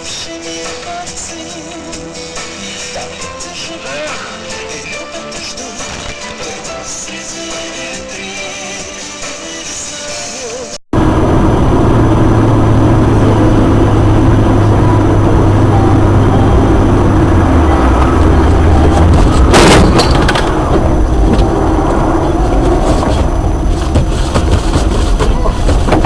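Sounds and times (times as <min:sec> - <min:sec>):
road and engine noise: 0:10.7 - 0:26.0
low hum: 0:11.0 - 0:26.0
sharp bang: 0:18.5 - 0:22.0.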